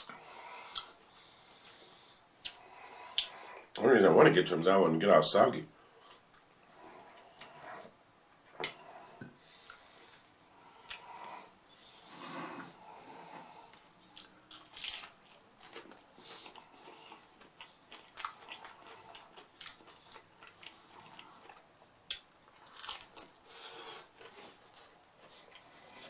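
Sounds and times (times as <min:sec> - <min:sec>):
crunching crispy taco shells: 0:14.2 - 0:16.7, 0:21.4 - 0:23.4.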